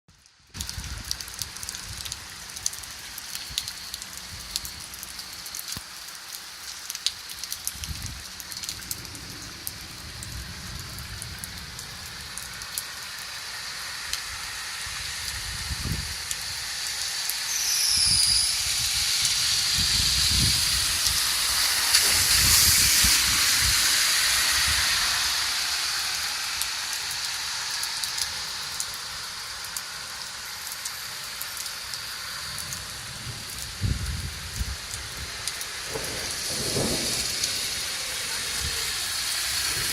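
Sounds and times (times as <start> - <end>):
heavy rain pouring: 0.1 - 39.9
low rumbles: 7.7 - 13.2.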